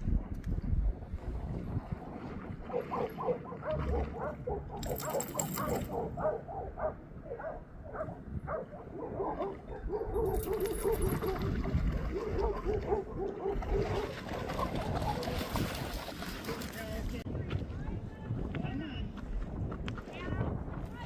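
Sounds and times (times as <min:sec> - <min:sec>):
wind on microphone: 0:00.0 - 0:21.0
dogs barking and yipping: 0:02.7 - 0:15.7.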